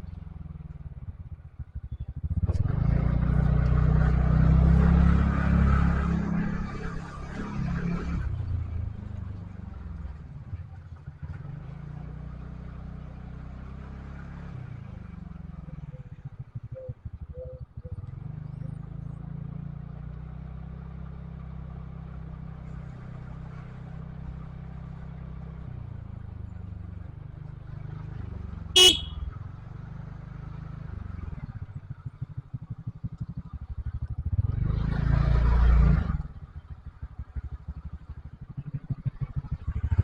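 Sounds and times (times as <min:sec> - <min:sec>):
vehicle engine running: 0:00.0 - 0:40.0
horn beep: 0:28.8 - 0:29.2.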